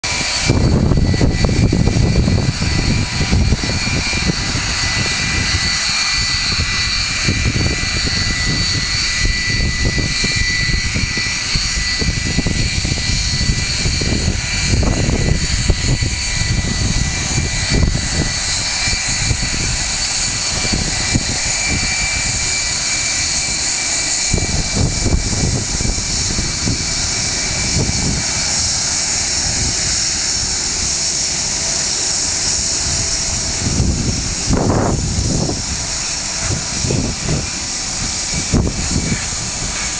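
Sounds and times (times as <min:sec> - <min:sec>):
jet engines whining: 0:00.0 - 0:39.9
wind buffeting microphone: 0:00.0 - 0:39.9.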